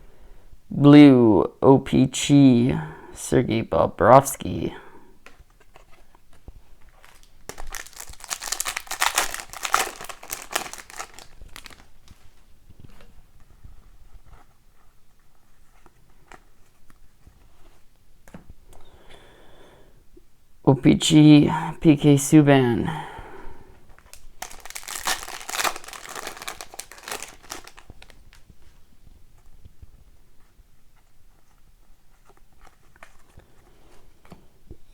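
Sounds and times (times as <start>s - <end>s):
wrapper being torn and crumpled: 7.0s - 11.9s, 24.1s - 28.4s.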